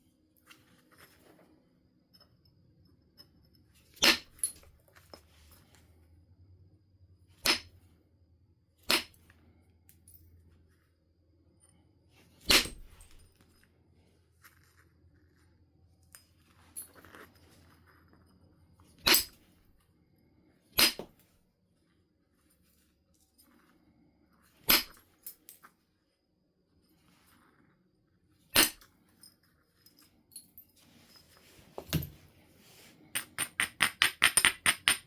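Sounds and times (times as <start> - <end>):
billet striking stone: 33.2 - 35.0.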